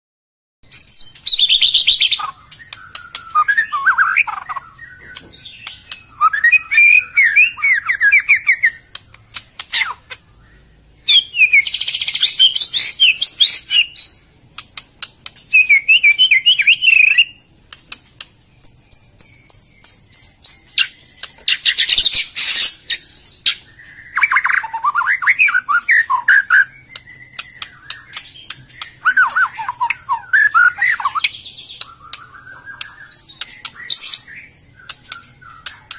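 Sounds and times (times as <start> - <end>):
bird singing warbles and whistles: 0.6 - 17.5, 18.5 - 35.9
sharp clicks: 5.1 - 6.1, 8.6 - 10.2, 14.5 - 16.2, 17.7 - 18.4, 26.9 - 30.0, 31.1 - 35.9.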